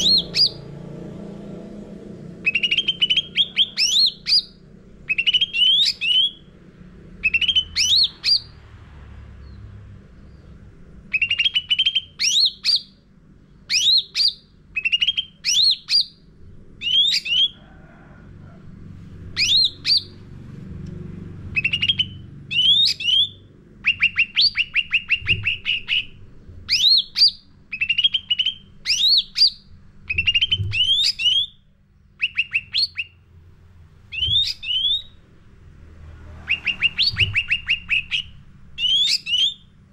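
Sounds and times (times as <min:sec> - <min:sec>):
songbird whistling: 0:00.0 - 0:00.7, 0:02.4 - 0:06.5, 0:07.2 - 0:08.6, 0:11.1 - 0:13.0, 0:13.6 - 0:16.2, 0:16.8 - 0:17.6, 0:19.4 - 0:20.2, 0:21.5 - 0:31.6, 0:32.2 - 0:33.2, 0:34.1 - 0:35.2, 0:36.4 - 0:39.8.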